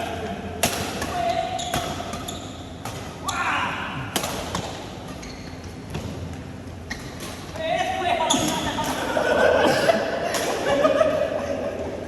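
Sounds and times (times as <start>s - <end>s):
rackets hitting shuttlecock: 0.6s - 3.4s, 4.0s - 6.2s.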